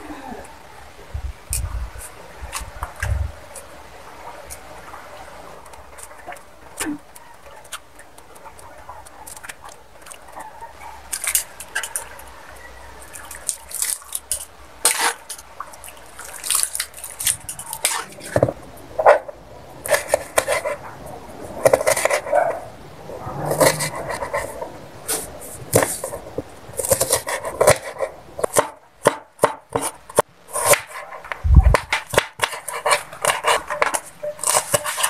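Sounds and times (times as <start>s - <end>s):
metal tongs scraping a wok: 32.4s - 35.0s.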